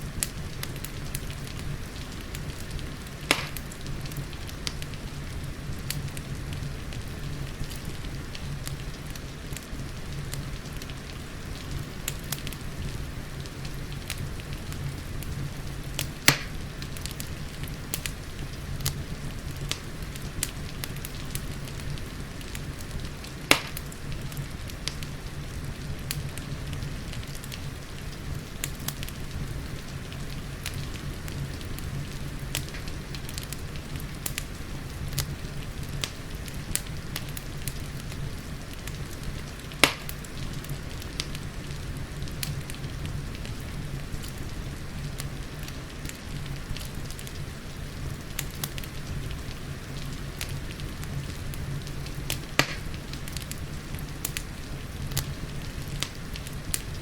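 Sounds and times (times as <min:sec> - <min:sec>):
fireplace crackling: 0:00.0 - 0:57.0
steady rain: 0:00.0 - 0:57.0
loud sharp fire pops: 0:00.2 - 0:04.9, 0:16.0 - 0:17.2, 0:22.4 - 0:25.0, 0:38.8 - 0:41.4, 0:52.3 - 0:53.6.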